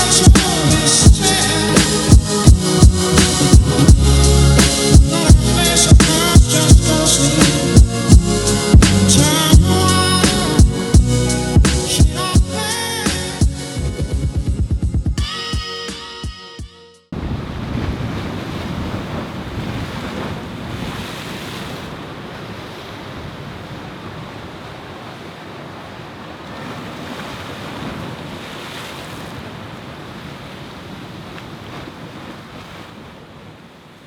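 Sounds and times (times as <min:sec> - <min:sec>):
gusty blizzard wind on microphone: 0:17.2 - 0:34.0.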